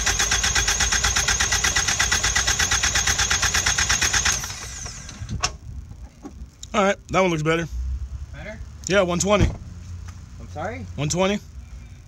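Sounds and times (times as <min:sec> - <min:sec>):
car engine cranking on starter: 0:00.0 - 0:05.5.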